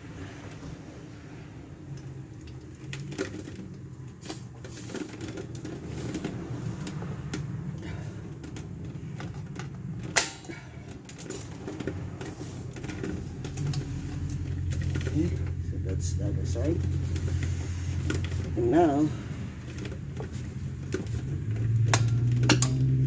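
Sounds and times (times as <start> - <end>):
hand tools clicking on metal: 20.8 - 23.0.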